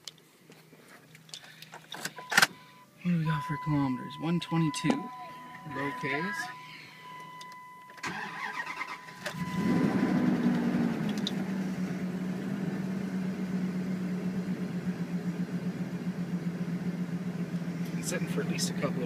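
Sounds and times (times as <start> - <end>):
car engine idling: 1.2 - 19.0
dashboard chime: 2.2 - 10.3.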